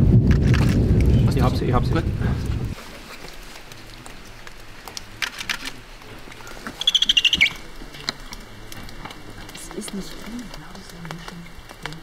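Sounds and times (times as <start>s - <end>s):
bird high chirps: 6.8s - 7.6s.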